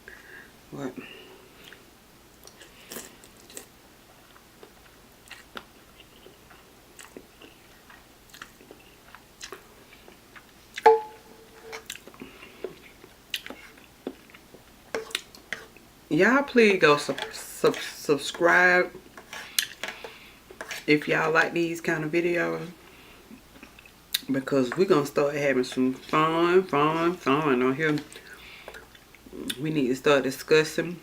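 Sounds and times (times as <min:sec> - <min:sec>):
chewing and wet mouth sounds: 0:01.6 - 0:10.9, 0:11.8 - 0:15.8, 0:23.3 - 0:24.3.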